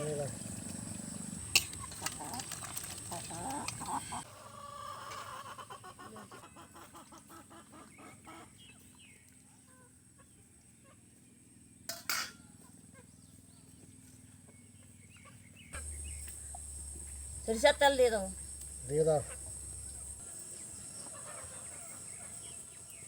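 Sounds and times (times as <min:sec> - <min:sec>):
chickens clucking: 0:00.0 - 0:09.1, 0:14.5 - 0:23.0.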